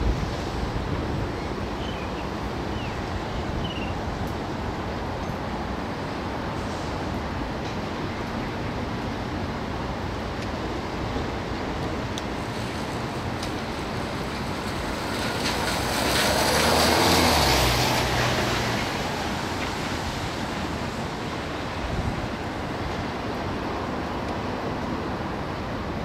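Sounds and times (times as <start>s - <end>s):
wind rush on microphone: 0.0s - 26.0s
jet airliner passing overhead: 13.7s - 21.7s.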